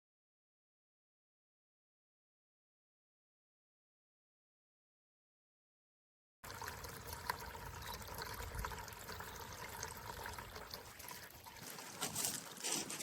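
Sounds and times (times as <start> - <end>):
fountain water trickling and splashing: 6.4 - 12.7.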